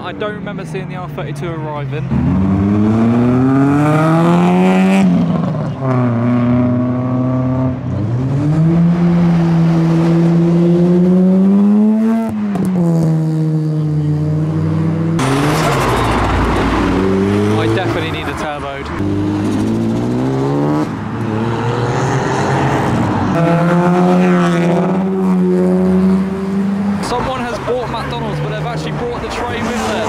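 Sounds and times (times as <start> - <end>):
car engine accelerating: 0.0 - 30.0
loud rushing noise: 15.2 - 23.4.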